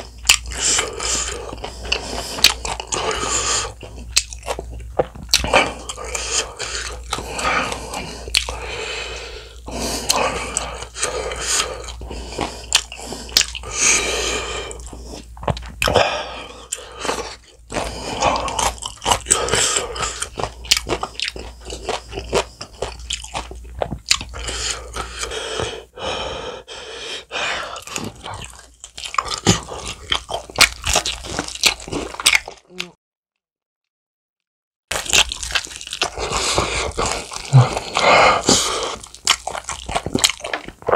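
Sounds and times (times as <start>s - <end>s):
crunchy fried chicken chewing: 0.1s - 8.7s, 16.6s - 25.6s, 27.8s - 32.9s, 34.9s - 40.9s.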